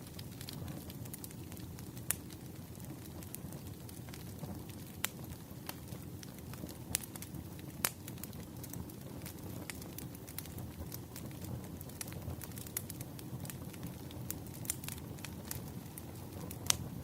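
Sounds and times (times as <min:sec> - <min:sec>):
sharp fire pops: 0:00.0 - 0:17.0
wood fire crackling: 0:00.0 - 0:17.0.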